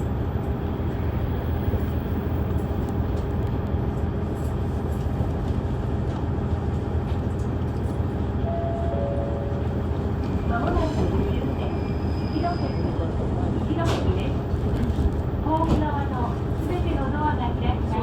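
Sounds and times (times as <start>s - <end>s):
train wheels on rails: 0.0s - 8.4s, 9.7s - 18.0s
short tone: 8.4s - 9.8s.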